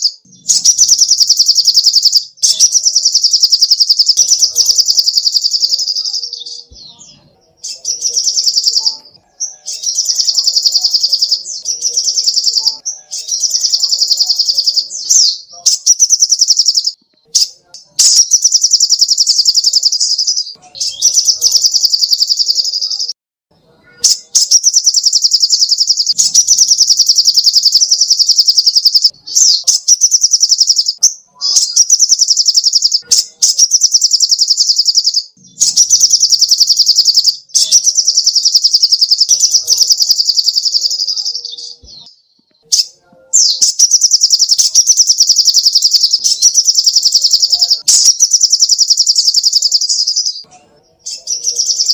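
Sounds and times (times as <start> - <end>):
bird singing high-pitched trills: 0.0 - 23.1, 23.8 - 42.1, 42.7 - 51.9.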